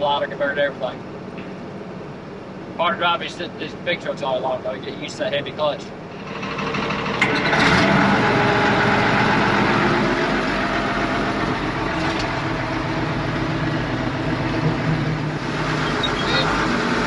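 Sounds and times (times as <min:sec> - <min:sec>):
truck diesel engine running: 0:00.0 - 0:17.0.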